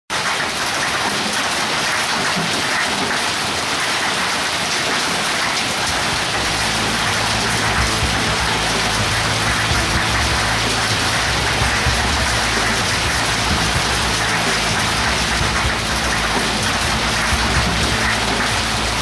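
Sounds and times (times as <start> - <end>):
hail and heavy rain: 0.1 - 19.0
low steady hum: 6.2 - 19.0.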